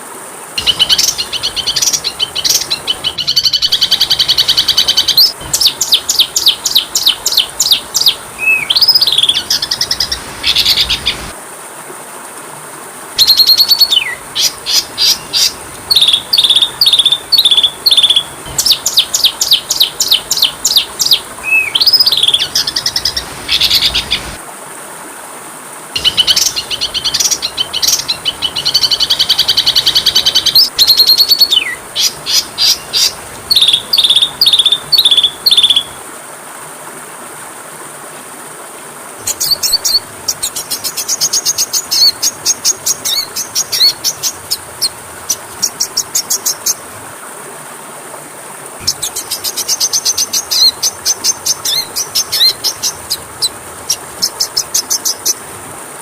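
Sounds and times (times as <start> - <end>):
bird chirping and whistling: 0.6 - 11.2, 13.2 - 24.3, 26.0 - 35.9.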